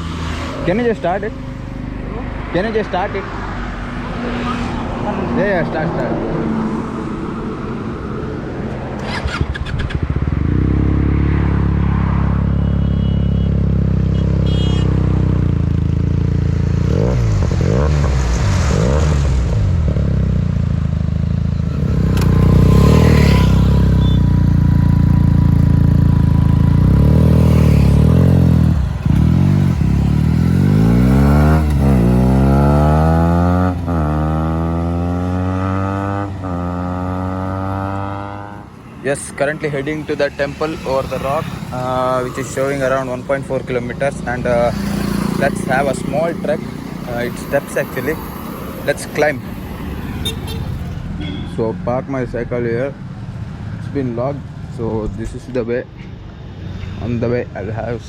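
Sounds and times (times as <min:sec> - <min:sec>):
motorcycle engine starting and revving: 0:07.4 - 0:12.5, 0:13.6 - 0:51.2.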